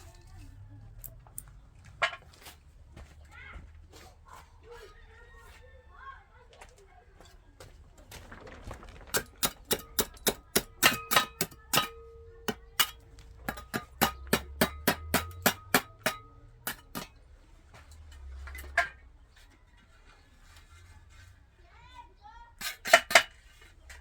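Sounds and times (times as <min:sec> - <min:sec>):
hammer tapping: 0:09.4 - 0:17.1.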